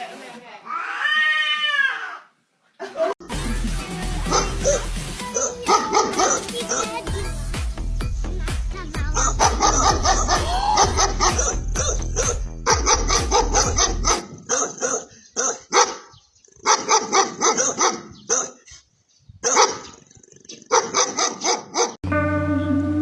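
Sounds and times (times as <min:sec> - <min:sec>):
dog barking: 0:04.3 - 0:07.0, 0:09.2 - 0:18.7, 0:19.4 - 0:19.9, 0:20.7 - 0:22.0.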